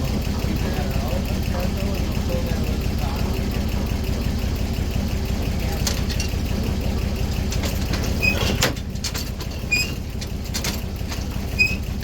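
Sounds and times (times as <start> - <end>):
sawmill power unit running: 0.0 - 12.0
high squeaks from machinery: 8.1 - 8.7, 9.6 - 10.2, 11.5 - 12.0.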